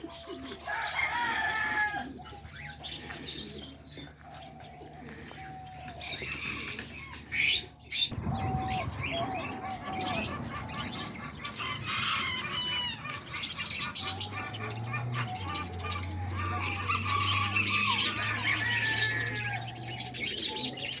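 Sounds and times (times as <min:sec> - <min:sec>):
parrots chirping and squawking: 0:05.0 - 0:21.0.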